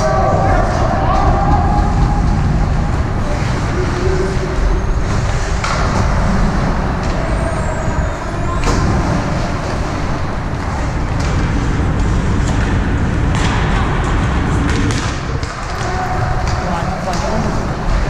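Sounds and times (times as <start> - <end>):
hockey game rumble and hiss: 0.0 - 18.0
hockey stick or puck clacks: 11.1 - 18.0.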